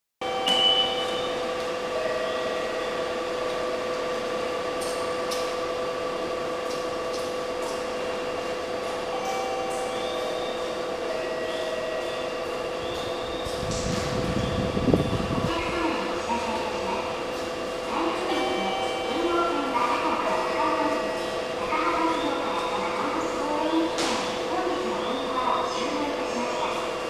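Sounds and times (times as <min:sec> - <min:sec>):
train electrical equipment hum: 0:00.2 - 0:27.0.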